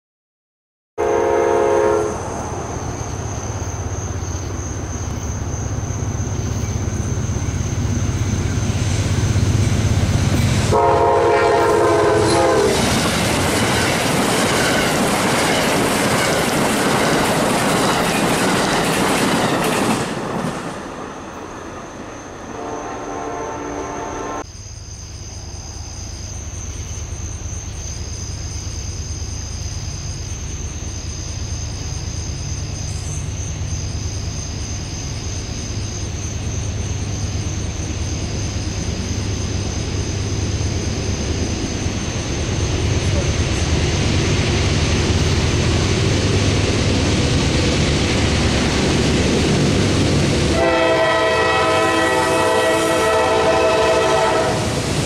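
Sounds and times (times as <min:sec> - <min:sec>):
train horn blasts: 0:01.0 - 0:02.3, 0:10.7 - 0:13.0, 0:22.5 - 0:24.4, 0:50.5 - 0:54.8
crickets chirping: 0:01.0 - 0:55.0
train wheel and rail noise: 0:01.0 - 0:55.0.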